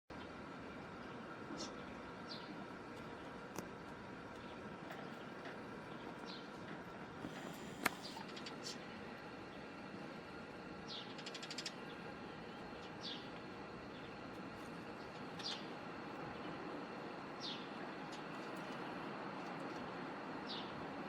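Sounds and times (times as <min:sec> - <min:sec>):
sparrows chirping: 0:01.0 - 0:03.4, 0:04.3 - 0:06.6, 0:07.3 - 0:08.9, 0:10.8 - 0:16.6, 0:17.2 - 0:19.8, 0:20.4 - 0:20.8.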